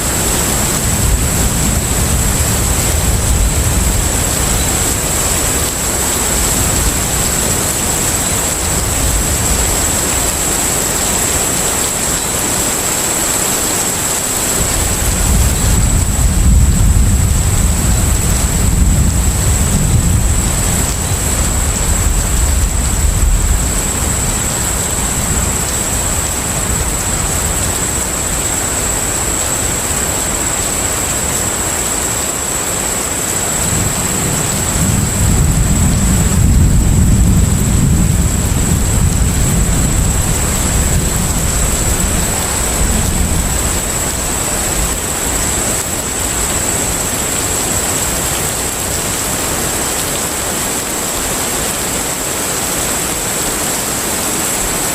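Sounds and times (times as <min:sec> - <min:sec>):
wind and water rushing: 0:00.0 - 0:54.9
deep ship rumble: 0:14.6 - 0:29.1.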